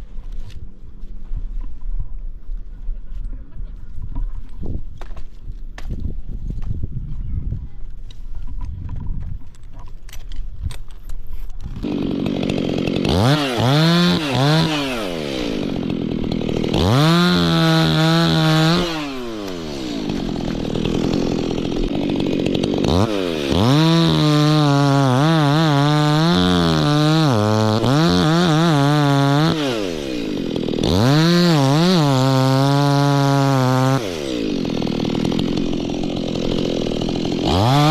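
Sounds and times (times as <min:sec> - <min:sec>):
chainsaw revving: 0:11.6 - 0:37.9.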